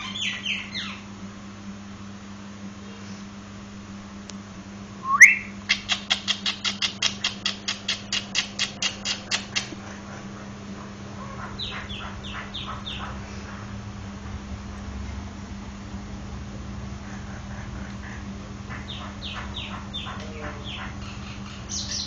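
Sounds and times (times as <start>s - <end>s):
myna singing whistled notes: 5.0s - 5.6s.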